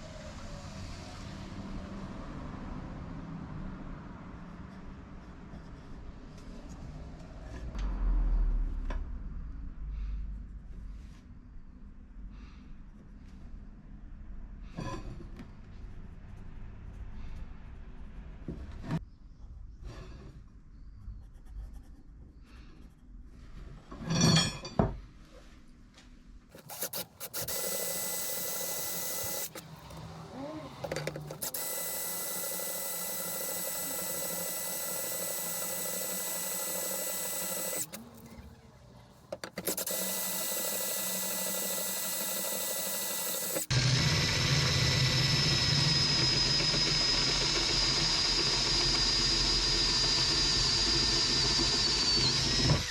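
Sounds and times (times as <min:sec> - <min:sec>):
electric power tool on steel rebar: 0:26.6 - 0:38.5, 0:39.4 - 0:52.9.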